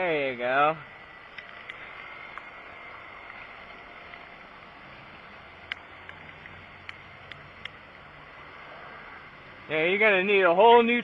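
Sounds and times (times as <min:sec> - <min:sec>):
sharp clicks: 0:05.6 - 0:07.8.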